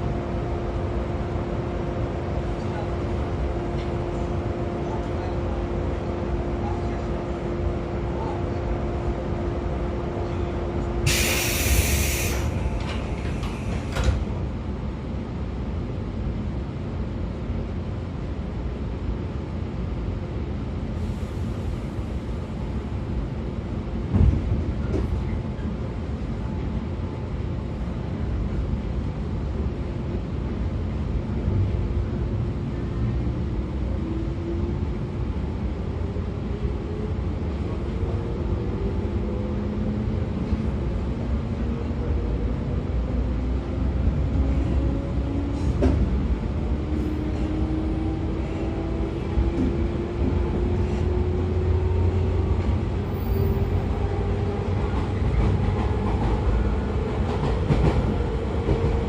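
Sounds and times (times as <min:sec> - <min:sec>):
train wheels rumbling on rail: 0:00.0 - 0:59.0
loud hiss: 0:11.1 - 0:12.6.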